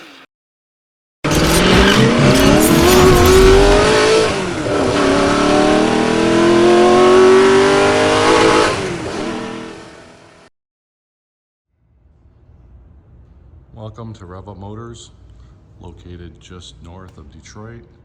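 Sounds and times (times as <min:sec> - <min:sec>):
car engine accelerating hard: 0:01.3 - 0:10.4.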